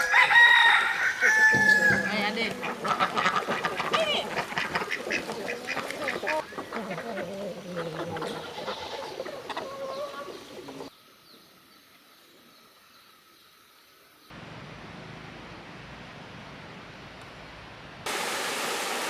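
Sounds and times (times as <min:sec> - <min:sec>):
poultry calling: 0:00.0 - 0:10.9
ducks quacking: 0:01.2 - 0:10.9.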